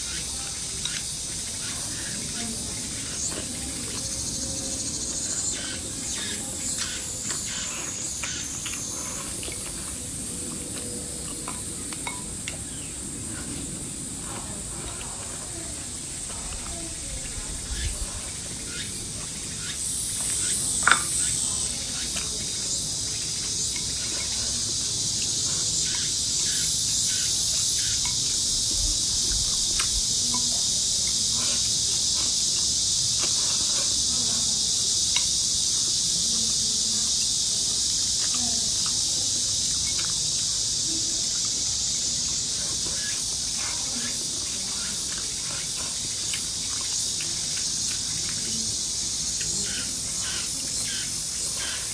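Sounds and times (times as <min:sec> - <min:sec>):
high-pitched insect chorus: 0:00.0 - 0:51.9.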